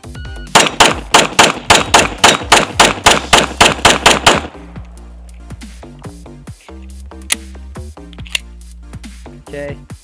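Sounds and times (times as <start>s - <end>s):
pistol rapid fire: 0.5s - 4.6s.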